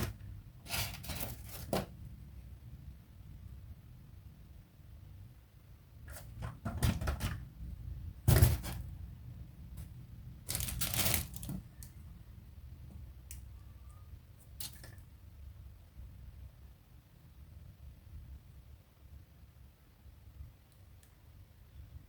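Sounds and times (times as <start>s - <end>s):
packaging rustling: 10.5s - 11.8s.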